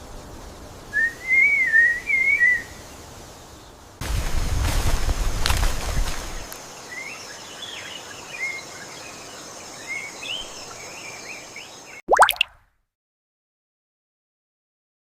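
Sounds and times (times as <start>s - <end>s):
insect drone: 0.0s - 12.0s
small birds chirping: 6.2s - 12.4s.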